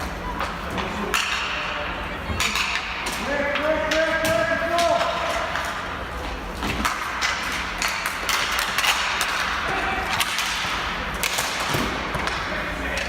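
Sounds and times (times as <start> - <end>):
rink background noise: 0.0 - 13.0
sticks and ball clacking: 6.6 - 13.0.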